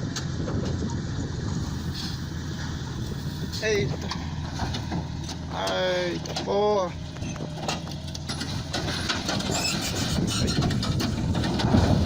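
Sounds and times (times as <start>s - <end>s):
heavy vehicle engine running: 0.0s - 12.0s
clanks and rattles: 3.9s - 12.0s.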